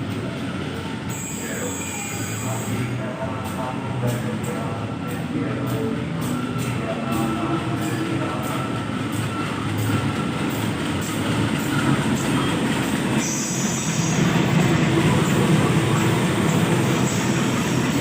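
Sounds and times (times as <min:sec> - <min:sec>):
train wheels rumbling: 0:00.0 - 0:18.0
wheel squeal: 0:01.1 - 0:02.8.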